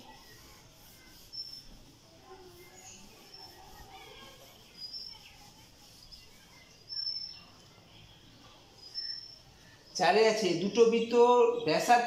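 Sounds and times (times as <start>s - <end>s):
bird chirps: 0.0s - 1.8s, 2.5s - 11.9s.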